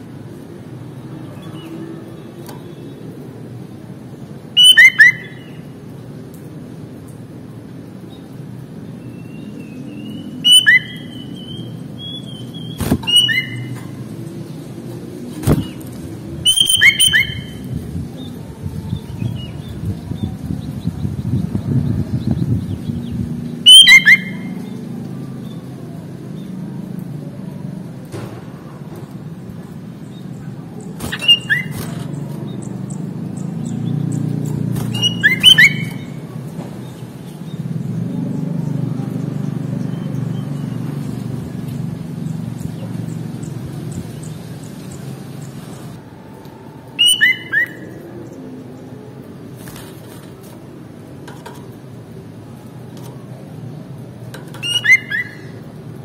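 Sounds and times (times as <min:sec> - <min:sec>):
bird singing whistled notes: 0:04.6 - 0:05.6, 0:09.0 - 0:13.8, 0:16.4 - 0:24.7, 0:30.8 - 0:36.2, 0:47.0 - 0:48.0, 0:54.6 - 0:55.6.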